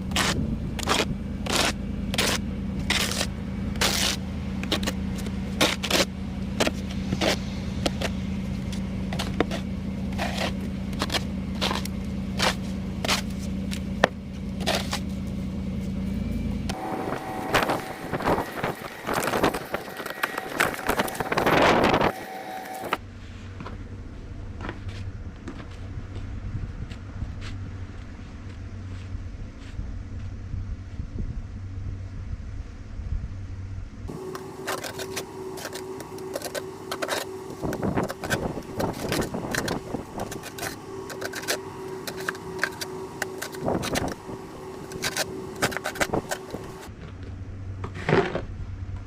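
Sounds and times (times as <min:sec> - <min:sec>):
snow shovel scraping pavement: 0:00.0 - 0:15.9, 0:16.7 - 0:23.0, 0:34.1 - 0:46.9, 0:47.9 - 0:48.5
vehicle engine idling: 0:00.0 - 0:49.0.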